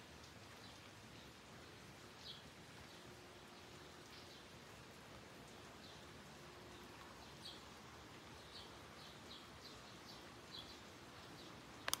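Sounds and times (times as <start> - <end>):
light rain hiss: 0.0 - 12.0
small bird chirping: 6.8 - 12.0.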